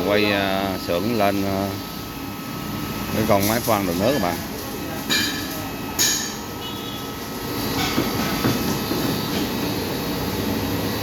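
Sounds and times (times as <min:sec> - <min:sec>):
sharp metal clank: 0:05.1 - 0:06.4.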